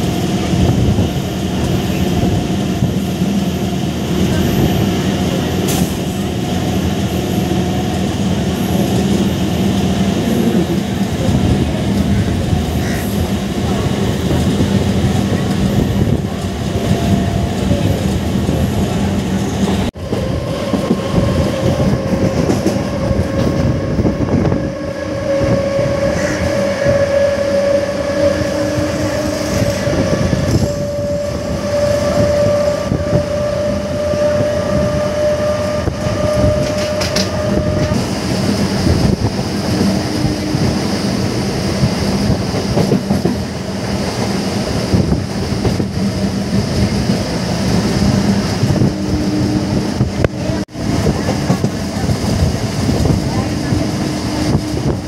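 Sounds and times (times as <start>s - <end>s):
heavy wind rush: 0.0s - 55.0s
train wheels clattering over rails: 3.6s - 24.1s, 35.6s - 48.9s.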